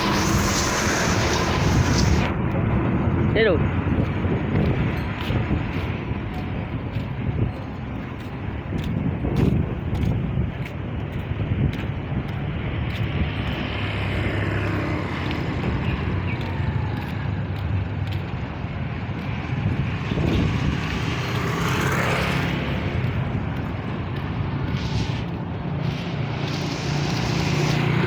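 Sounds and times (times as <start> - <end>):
vehicle passing close: 0.0 - 6.2, 12.8 - 28.0
heavy truck engine running: 0.0 - 11.3
traffic noise: 0.0 - 28.0.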